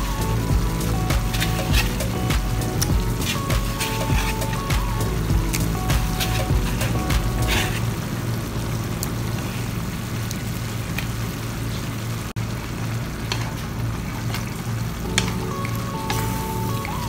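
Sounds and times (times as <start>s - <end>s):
steady low hum: 0.0s - 12.7s
meat sizzling in a wok: 0.0s - 17.0s
wooden spatula stirring pan: 5.5s - 7.9s.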